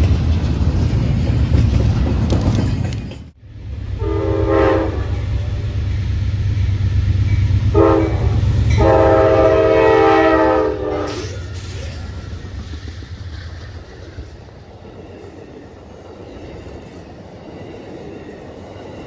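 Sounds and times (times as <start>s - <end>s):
passing train rumble: 0.0s - 19.0s
locomotive air horn blasts: 4.0s - 5.7s, 7.7s - 11.6s.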